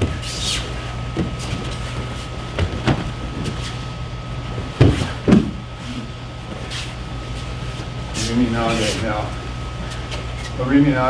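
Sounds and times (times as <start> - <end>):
heavy thumps: 0.0 - 8.0
feet thudding on a mat: 0.0 - 9.0
air-conditioning hum: 0.0 - 11.0.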